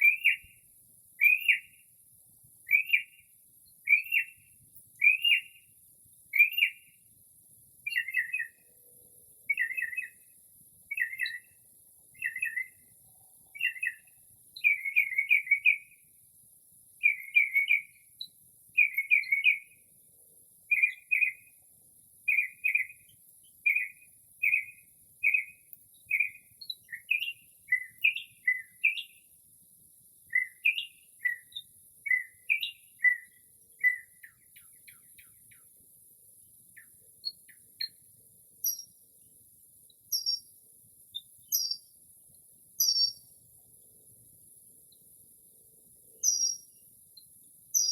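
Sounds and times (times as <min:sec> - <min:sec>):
mockingbird singing: 0:00.0 - 0:00.6, 0:01.2 - 0:01.8, 0:02.7 - 0:03.2, 0:03.8 - 0:05.6, 0:06.3 - 0:07.0, 0:07.8 - 0:08.7, 0:09.4 - 0:10.2, 0:10.9 - 0:11.5, 0:12.1 - 0:12.9, 0:13.5 - 0:16.0, 0:17.0 - 0:19.8, 0:20.7 - 0:21.5, 0:22.3 - 0:29.2, 0:30.3 - 0:35.7, 0:38.6 - 0:39.0, 0:40.0 - 0:40.5, 0:41.1 - 0:41.9, 0:42.8 - 0:43.3, 0:46.1 - 0:47.9.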